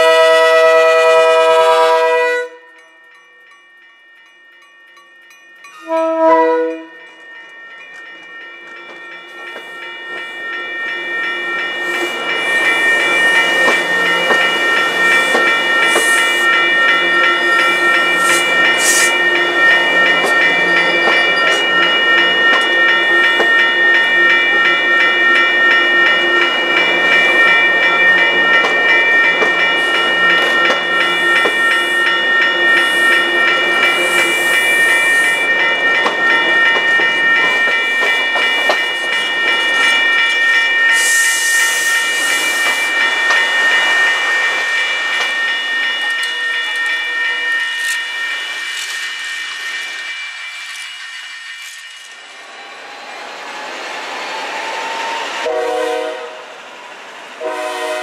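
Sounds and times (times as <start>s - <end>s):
train horn blast: 0.0s - 2.7s, 5.8s - 7.0s, 55.4s - 56.5s, 57.4s - 58.0s
train wheels rolling on rail: 6.6s - 58.0s
steady whining tones: 6.8s - 55.8s.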